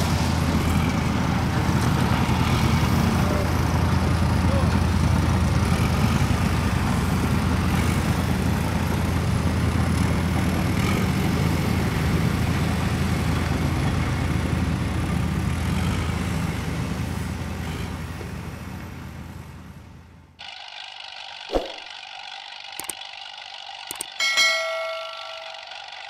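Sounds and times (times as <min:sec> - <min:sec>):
engine low rumble: 0:00.0 - 0:20.4.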